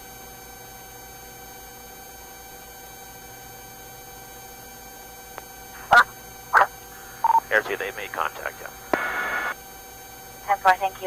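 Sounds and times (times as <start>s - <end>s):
electronic hum and hiss: 0.0s - 11.0s
constant pitched tones: 5.4s - 9.6s, 10.2s - 11.0s.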